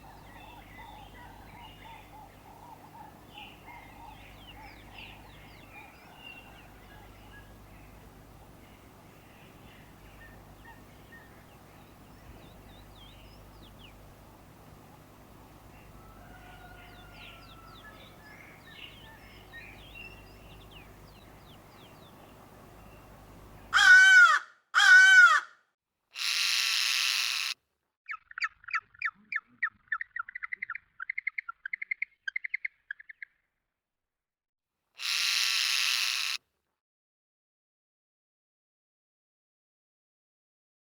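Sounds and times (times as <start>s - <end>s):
bird chirping: 0.0s - 23.8s, 28.1s - 33.5s
bird calls: 0.0s - 25.4s, 26.2s - 33.4s, 35.0s - 36.4s
faint birdsong: 0.0s - 25.4s, 26.2s - 33.6s
harsh caw: 23.7s - 25.6s, 35.0s - 36.4s.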